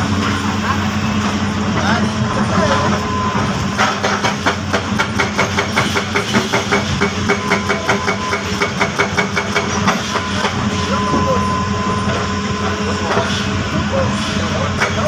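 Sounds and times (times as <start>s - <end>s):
engine hum: 0.0s - 15.0s
machinery knocking: 0.1s - 11.4s, 12.0s - 15.0s.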